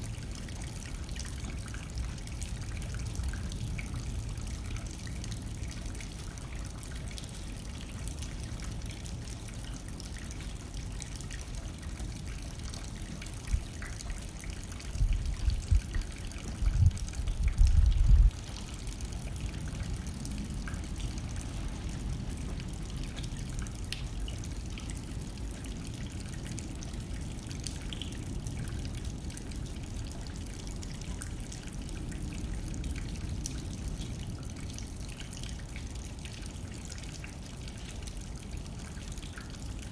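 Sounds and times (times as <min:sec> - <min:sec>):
rain on window glass: 0:00.0 - 0:39.9
wind blowing: 0:15.0 - 0:22.9.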